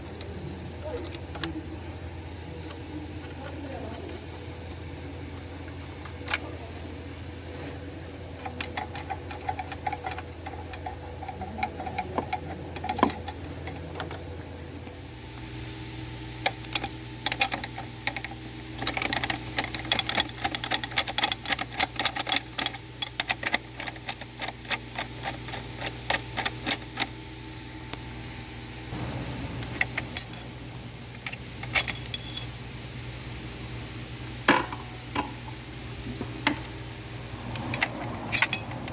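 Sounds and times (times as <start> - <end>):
steady low hum: 0.0 - 38.9
metal tools clinking on metal: 8.4 - 14.3, 16.5 - 27.1, 29.8 - 30.6, 31.2 - 32.5, 37.5 - 38.9.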